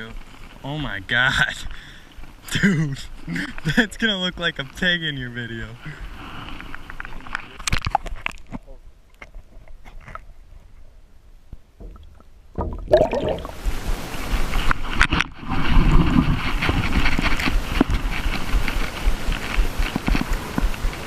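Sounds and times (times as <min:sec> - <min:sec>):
low thumps: 0:11.8 - 0:14.1
wind on microphone: 0:11.8 - 0:21.0
boat moving across water: 0:13.4 - 0:21.0.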